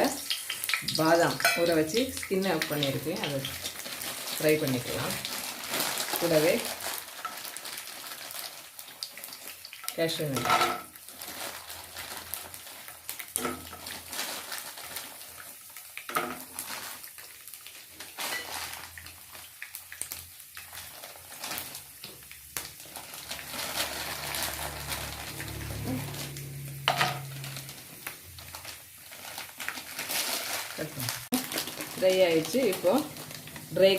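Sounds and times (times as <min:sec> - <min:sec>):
nuts frying in hot oil: 0:00.0 - 0:33.9
spoon clinking and scraping pan: 0:01.4 - 0:01.7.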